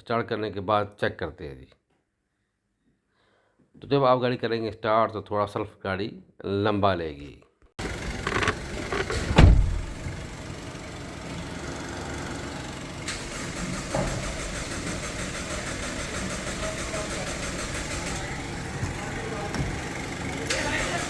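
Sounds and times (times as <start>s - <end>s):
engine cranking with starter: 7.8s - 21.0s.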